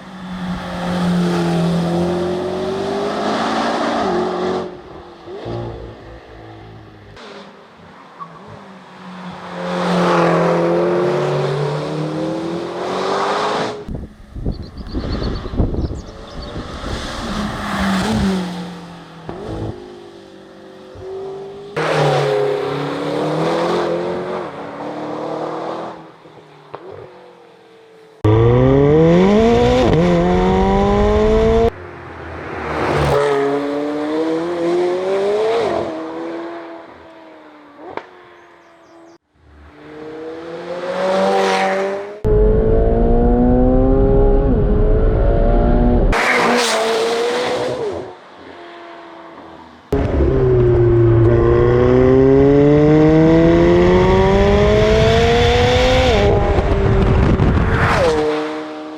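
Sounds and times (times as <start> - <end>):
cars accelerating hard: 0.0 - 8.6, 9.2 - 13.9, 28.2 - 37.0, 39.5 - 58.9
cars passing by loudly: 0.0 - 42.7, 45.5 - 58.9.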